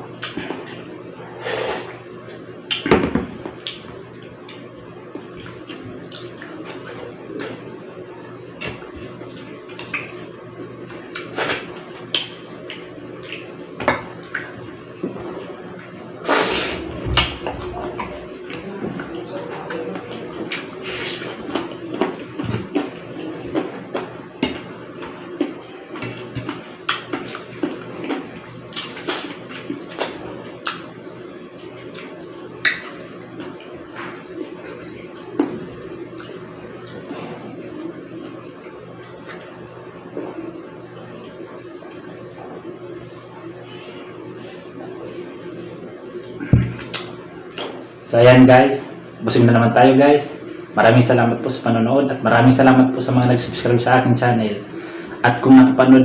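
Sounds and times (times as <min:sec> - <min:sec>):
chewing: 0:17.2 - 0:30.9.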